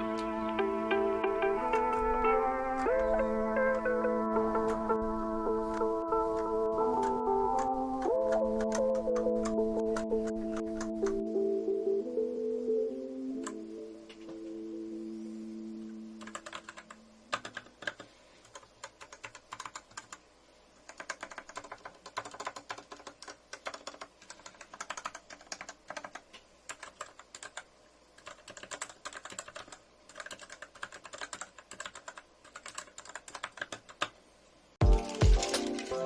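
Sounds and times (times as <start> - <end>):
mechanical keyboard typing: 5.6 - 11.2, 16.2 - 20.2, 20.9 - 34.2, 34.8 - 36.0.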